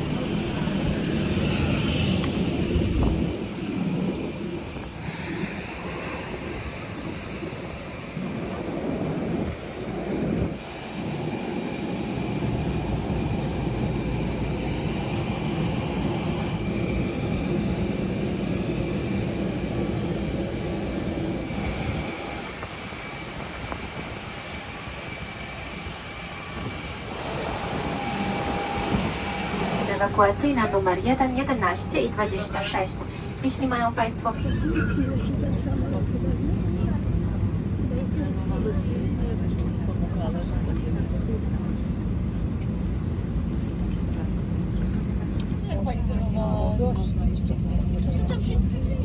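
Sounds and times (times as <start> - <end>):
jet airliner whine and rumble: 0.0 - 49.0.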